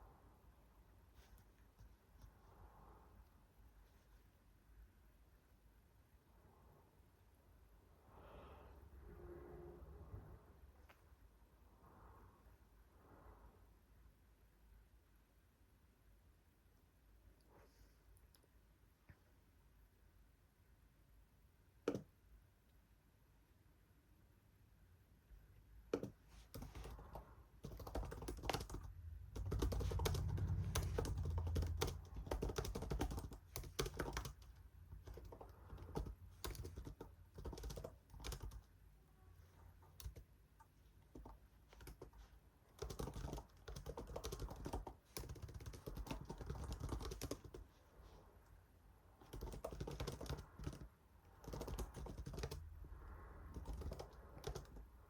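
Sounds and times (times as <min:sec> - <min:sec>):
keyboard typing: 0:25.9 - 0:38.7, 0:39.9 - 0:40.3, 0:41.1 - 0:47.7, 0:49.2 - 0:52.6, 0:53.5 - 0:54.9.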